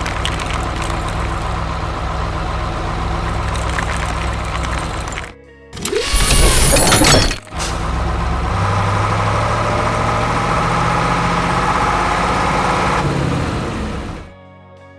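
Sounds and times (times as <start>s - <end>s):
heavy diesel engine running: 0.0s - 14.3s
loud crash: 5.8s - 7.9s.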